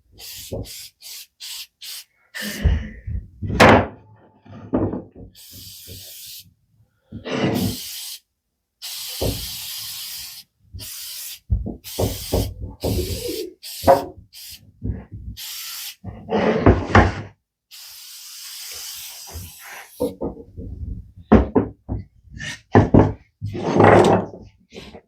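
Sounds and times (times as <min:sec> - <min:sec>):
bursts of hissing: 0:00.0 - 0:03.0, 0:05.3 - 0:06.5, 0:07.2 - 0:14.7, 0:15.3 - 0:16.2, 0:17.7 - 0:20.2
objects knocking and clattering: 0:02.7 - 0:05.4, 0:20.0 - 0:24.5.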